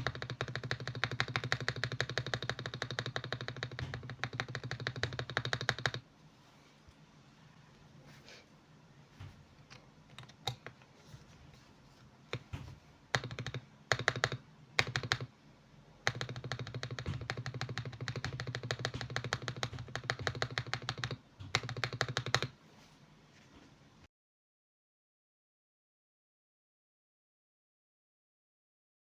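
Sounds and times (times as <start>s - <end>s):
mechanical keyboard typing: 0.0s - 6.0s, 10.1s - 10.8s, 13.1s - 15.3s, 16.0s - 22.6s.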